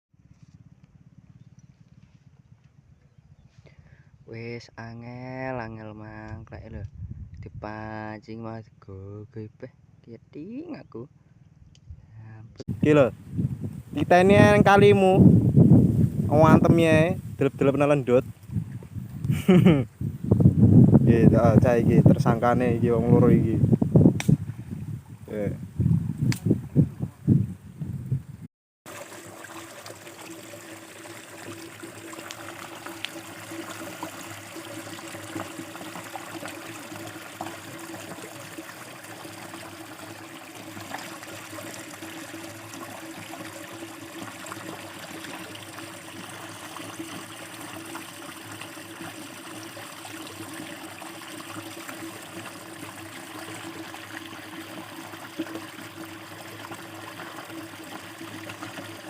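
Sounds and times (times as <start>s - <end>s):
river trickling over shallows: 28.9s - 59.0s.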